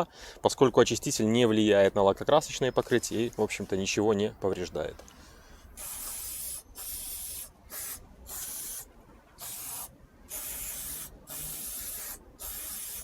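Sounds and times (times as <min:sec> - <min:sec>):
aerosol can spraying hiss: 0:05.8 - 0:13.0.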